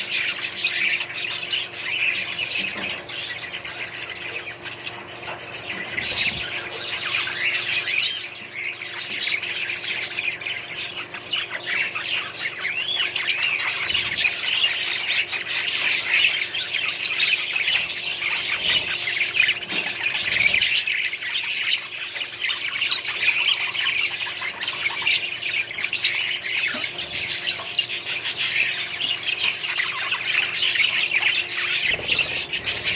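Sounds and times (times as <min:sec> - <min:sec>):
budgerigars chattering and squawking: 0:00.0 - 0:32.9.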